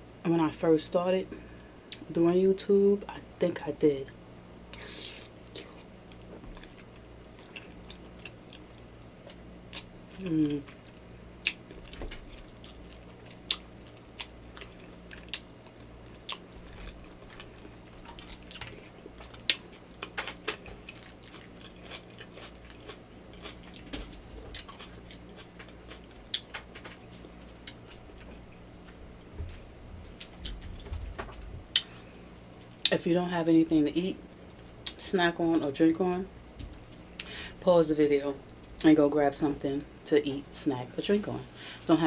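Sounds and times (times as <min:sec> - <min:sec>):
close chewing and biting: 0:10.6 - 0:28.4.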